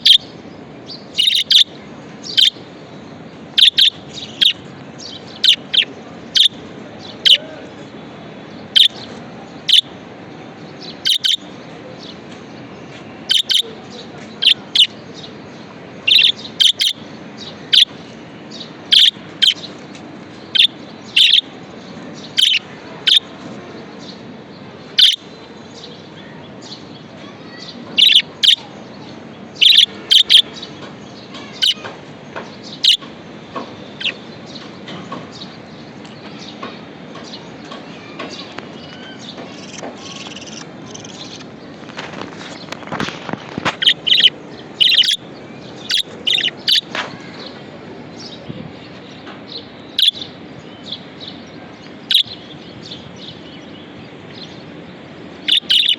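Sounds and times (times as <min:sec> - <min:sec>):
budgerigar chirping: 0:00.0 - 0:00.3, 0:01.0 - 0:02.6, 0:03.5 - 0:06.6, 0:07.2 - 0:07.4, 0:08.7 - 0:09.0, 0:09.6 - 0:09.9, 0:11.0 - 0:11.4, 0:13.3 - 0:13.7, 0:14.4 - 0:15.0, 0:16.0 - 0:17.0, 0:17.7 - 0:18.0, 0:18.9 - 0:19.7, 0:20.5 - 0:21.5, 0:22.3 - 0:23.2, 0:25.0 - 0:25.2, 0:28.0 - 0:28.6, 0:29.6 - 0:30.5, 0:31.5 - 0:31.8, 0:32.7 - 0:33.0, 0:34.0 - 0:34.2, 0:43.8 - 0:46.9, 0:49.9 - 0:50.3, 0:52.1 - 0:52.4, 0:55.4 - 0:55.9
steady background noise: 0:00.0 - 0:55.9.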